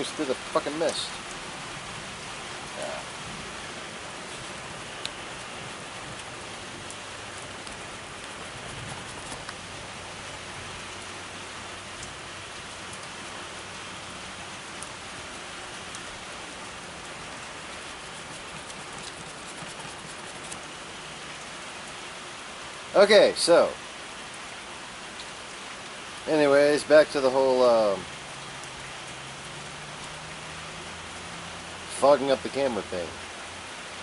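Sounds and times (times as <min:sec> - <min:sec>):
steady rain hiss: 0:00.0 - 0:34.0
sharp drip ticks: 0:02.2 - 0:22.0, 0:25.0 - 0:26.3, 0:27.1 - 0:33.0.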